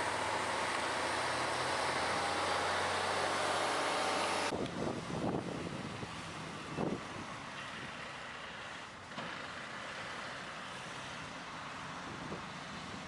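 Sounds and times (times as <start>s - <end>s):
vehicle road and engine noise: 0.0s - 13.0s.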